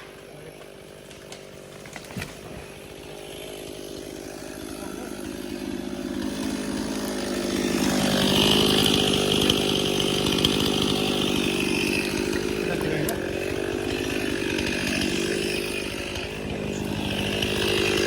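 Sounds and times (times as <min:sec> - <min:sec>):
chainsaw engine running: 0:00.0 - 0:18.0.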